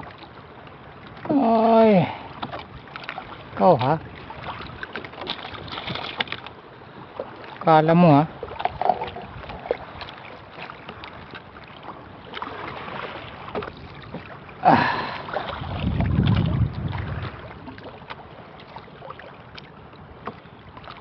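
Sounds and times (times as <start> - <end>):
choppy water: 0.0 - 21.0
small knocks on boat: 2.4 - 7.7, 8.4 - 14.4, 15.5 - 21.0
wind rumbling on microphone: 8.2 - 10.2, 13.3 - 18.3.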